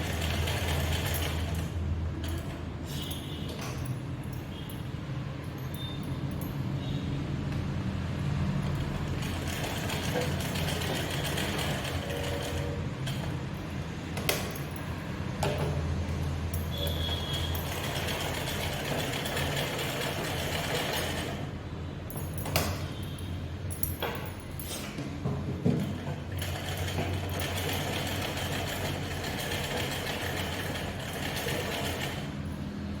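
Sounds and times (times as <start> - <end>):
electric sewing machine running: 0.0 - 2.6, 8.7 - 13.5, 17.2 - 21.5, 25.8 - 32.4.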